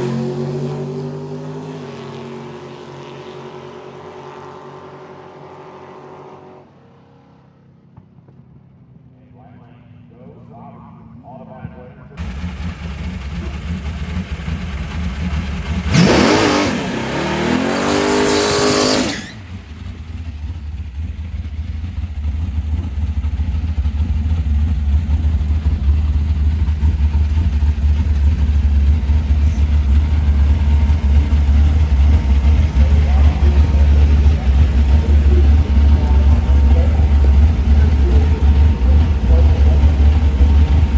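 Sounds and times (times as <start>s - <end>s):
race car engine revving: 0.0s - 6.8s, 12.2s - 40.9s
deep steady rumble: 9.7s - 40.9s.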